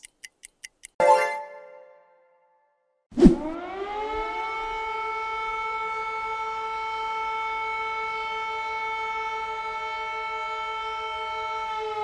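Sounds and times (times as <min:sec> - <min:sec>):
air raid siren: 0:03.4 - 0:12.0.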